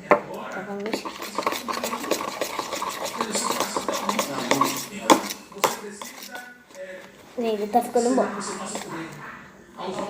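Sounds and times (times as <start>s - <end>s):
utensil scraping a container: 0.7s - 6.9s, 7.9s - 9.0s.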